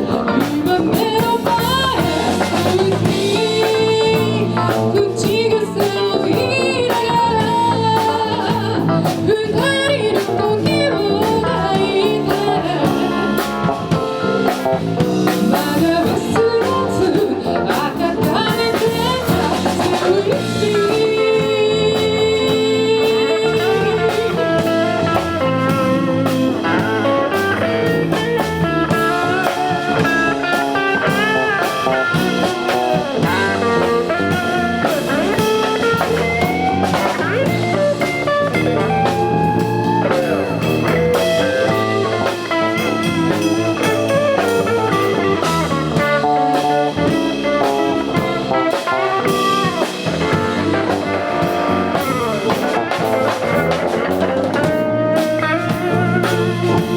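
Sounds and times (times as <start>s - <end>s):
bass: 0.0s - 56.9s
drum kit: 0.0s - 56.9s
electric guitar melody with bends: 0.0s - 56.9s.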